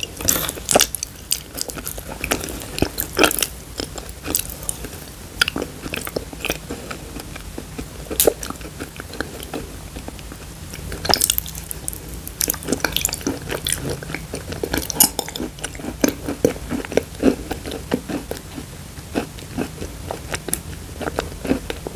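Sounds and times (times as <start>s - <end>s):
wet chewing mouth sounds: 0.0s - 21.9s.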